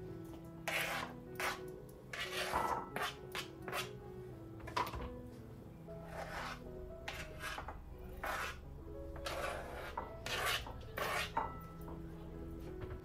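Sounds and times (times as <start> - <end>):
soft background music: 0.0 - 13.0
scraping strokes in food preparation: 0.6 - 4.0, 6.0 - 8.6, 9.2 - 11.5.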